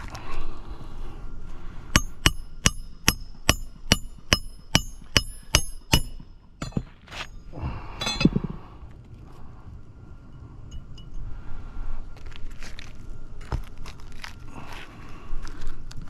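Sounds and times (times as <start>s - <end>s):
hammer striking metal: 2.0s - 7.0s, 8.0s - 8.4s.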